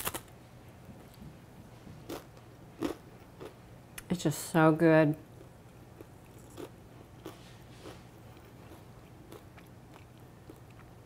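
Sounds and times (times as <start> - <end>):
person chewing crunchy cracker: 2.1 - 3.6, 5.4 - 11.0.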